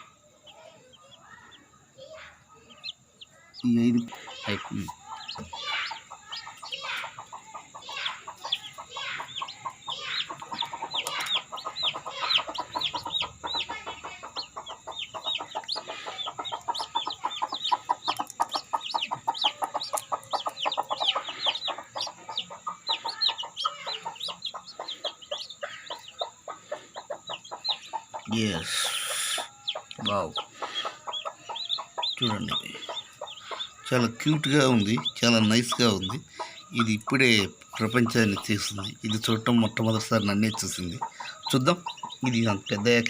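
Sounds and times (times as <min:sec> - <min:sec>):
chicks peeping: 0:00.0 - 0:43.0
hen clucking: 0:00.0 - 0:43.0.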